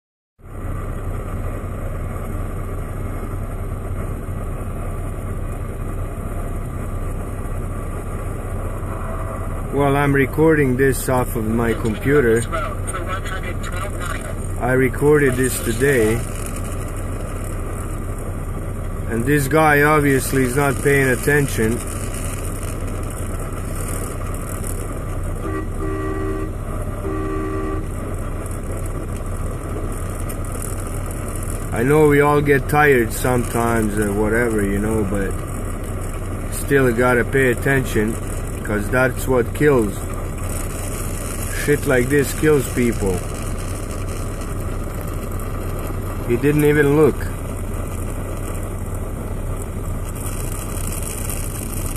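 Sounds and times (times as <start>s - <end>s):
engine idling rumble: 0.4s - 51.9s
truck horn blasts: 25.4s - 28.1s.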